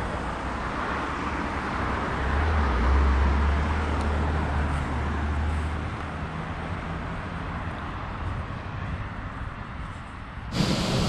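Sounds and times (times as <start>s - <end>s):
street noise: 0.0s - 11.0s
vehicle engine rumbling: 10.0s - 11.0s.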